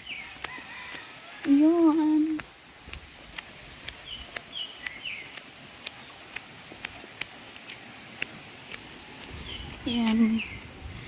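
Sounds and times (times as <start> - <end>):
bird chirping: 3.9 - 5.4, 9.4 - 10.8.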